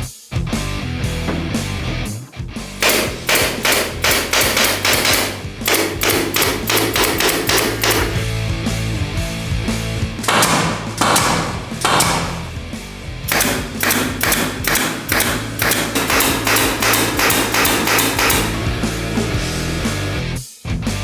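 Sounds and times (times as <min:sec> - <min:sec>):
background music: 0:00.0 - 0:21.0
pneumatic nail gun firing: 0:02.8 - 0:08.3, 0:10.2 - 0:12.6, 0:13.3 - 0:18.7.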